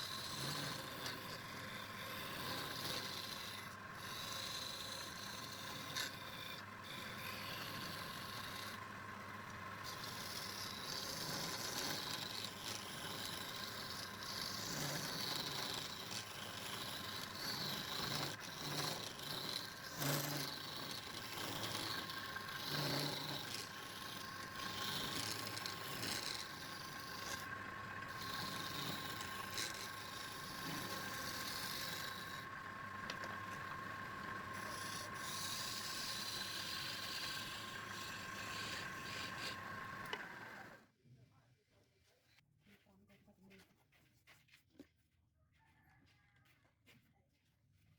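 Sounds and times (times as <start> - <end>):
rasping on wood: 0.0 - 40.8
steady whine: 0.0 - 40.8.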